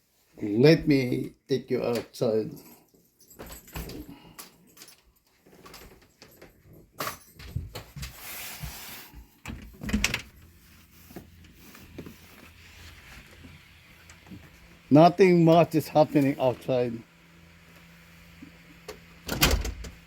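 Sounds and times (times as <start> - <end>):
door clicks and knocks: 9.5 - 10.3, 19.3 - 20.0.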